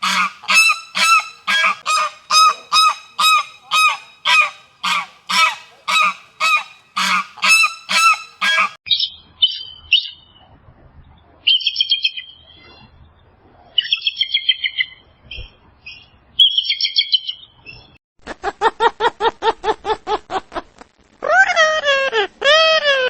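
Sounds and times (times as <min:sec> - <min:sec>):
bird chirping high notes: 0:00.0 - 0:08.8
lower repeated bird calls: 0:00.0 - 0:08.8.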